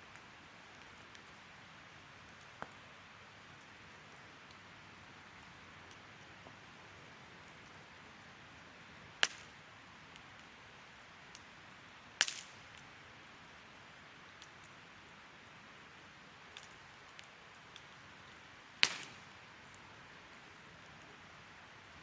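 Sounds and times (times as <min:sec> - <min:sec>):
wood fire crackling: 0:00.0 - 0:22.0
sharp fire pops: 0:09.2 - 0:09.6, 0:12.2 - 0:12.9, 0:18.8 - 0:19.8.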